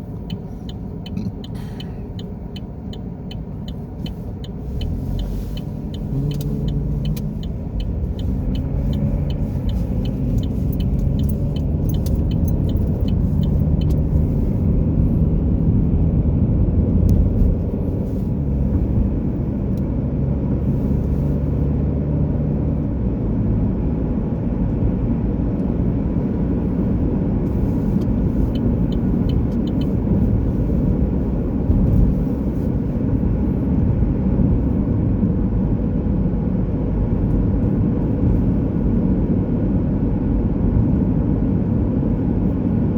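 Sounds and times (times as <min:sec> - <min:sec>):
rapid light ticks: 0:00.0 - 0:14.4, 0:27.5 - 0:31.2
car engine and road rumble: 0:00.0 - 0:42.9.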